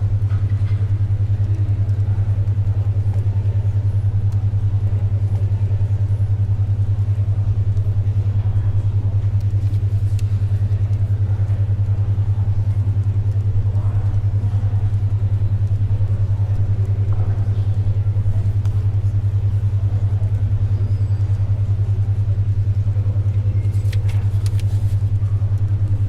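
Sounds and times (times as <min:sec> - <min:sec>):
faint library ambience: 0:00.0 - 0:26.0
pulsing low hum: 0:00.0 - 0:26.0
soft ticks of paper or pencil: 0:09.3 - 0:11.8, 0:23.2 - 0:26.0.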